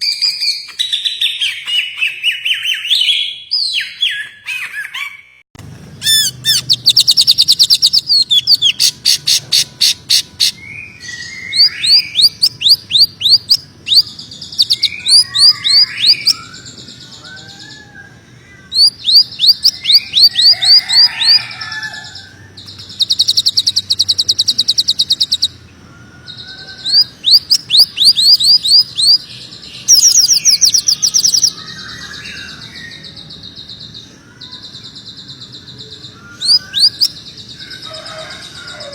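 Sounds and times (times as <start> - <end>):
bird singing sharp sweeping notes: 6.0 - 17.8, 26.3 - 38.9.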